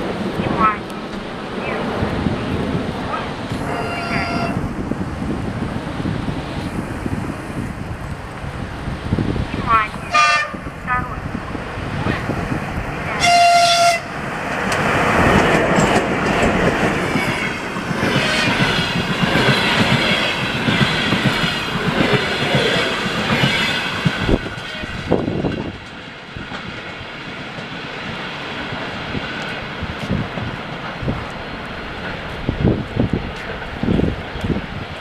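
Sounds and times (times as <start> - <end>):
train rumble with knocks: 0.0 - 35.0
train wheels clattering over rail joints: 14.4 - 34.6.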